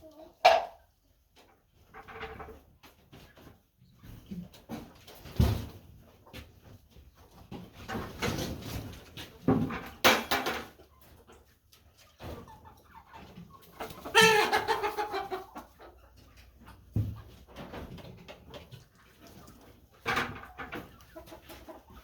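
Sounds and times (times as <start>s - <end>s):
chickens clucking: 0.0s - 22.0s
chicken drawn-out call: 13.8s - 15.7s.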